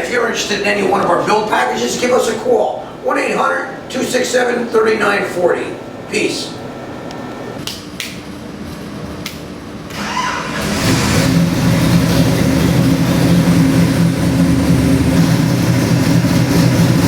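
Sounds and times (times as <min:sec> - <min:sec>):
car engine starting and running: 0:09.9 - 0:17.0.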